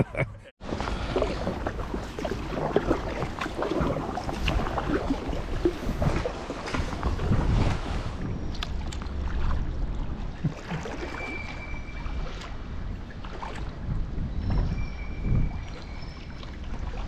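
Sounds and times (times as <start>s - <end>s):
kayak paddling splashes: 0.6s - 14.0s, 14.8s - 17.0s
wind on microphone: 0.9s - 10.6s, 11.7s - 17.0s
thin steady whistle: 11.2s - 12.1s.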